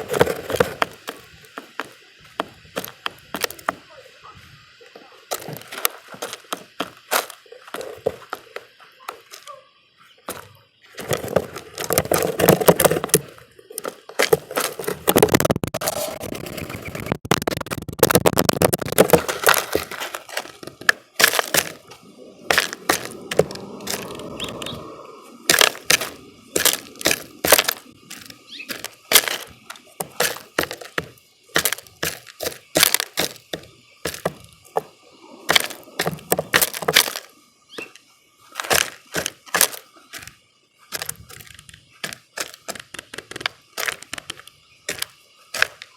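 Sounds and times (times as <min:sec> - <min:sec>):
beaks pecking at bird feeder: 0:16.3 - 0:45.9.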